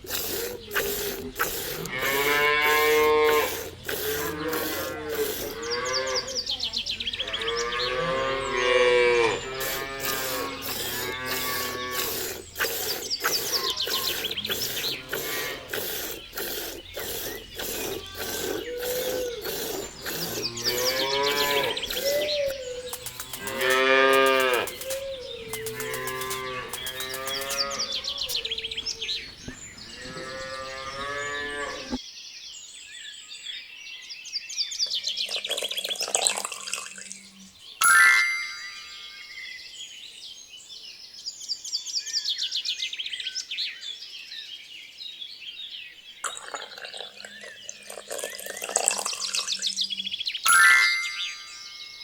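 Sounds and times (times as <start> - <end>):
regular ticking: 0.0 - 5.7, 9.6 - 29.6
cattle mooing: 1.6 - 6.4, 7.2 - 29.2, 29.9 - 32.0
high chirps: 9.4 - 29.8, 37.8 - 39.6, 50.5 - 52.0.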